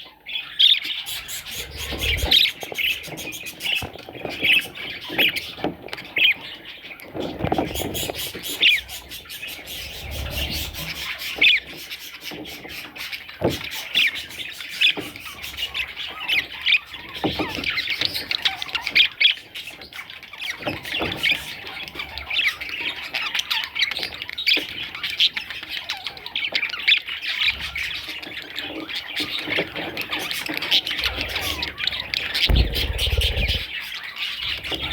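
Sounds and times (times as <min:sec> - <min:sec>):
budgerigars chattering: 0:00.4 - 0:05.6, 0:07.6 - 0:13.0, 0:30.8 - 0:33.7.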